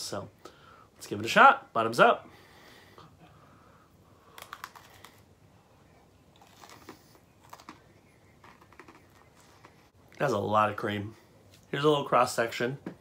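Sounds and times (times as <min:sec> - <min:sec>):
cookie crunching: 0:04.2 - 0:05.3, 0:06.3 - 0:09.8.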